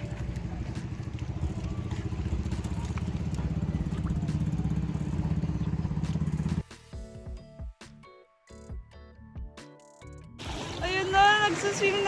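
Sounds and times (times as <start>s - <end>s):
small engine pulsing drone: 0.0s - 6.6s.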